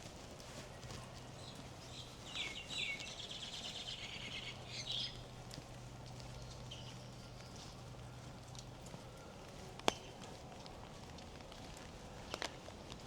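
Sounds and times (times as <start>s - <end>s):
bird chirping: 1.4s - 5.3s.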